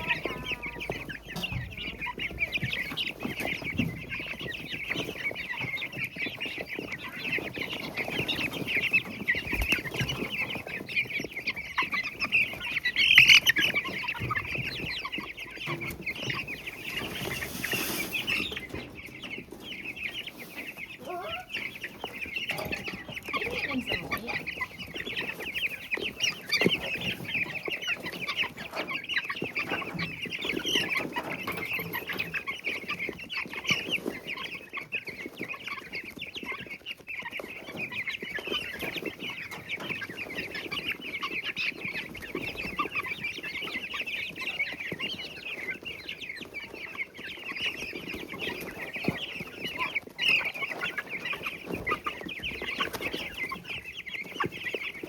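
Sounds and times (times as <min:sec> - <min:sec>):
chicks cheeping: 0:00.0 - 0:55.0
scratching in wood shavings: 0:00.0 - 0:55.0.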